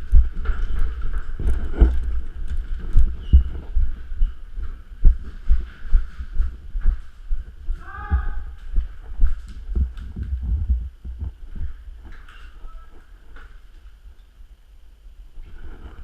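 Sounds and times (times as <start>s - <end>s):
microphone handling thumps and knocks: 0.0s - 12.2s.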